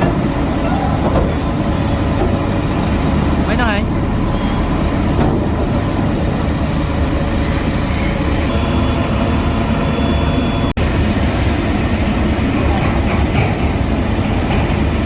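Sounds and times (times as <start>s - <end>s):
diesel construction machinery running: 0.0s - 11.1s.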